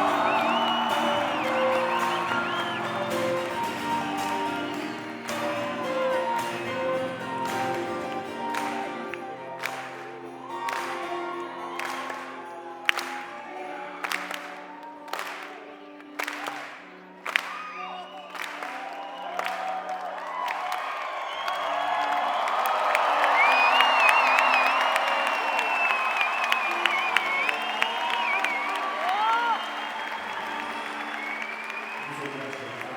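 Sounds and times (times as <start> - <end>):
band playing acoustic chords: 0.0 - 13.2
crowd singing: 0.0 - 15.4
audience clapping: 0.0 - 32.9
crowd cheering: 0.0 - 32.9.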